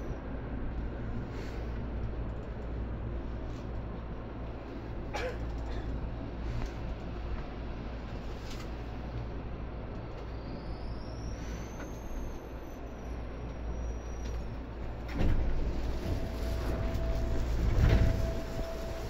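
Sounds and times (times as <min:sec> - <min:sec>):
train interior rumble: 0:00.0 - 0:19.0
faint high whine: 0:10.0 - 0:19.0.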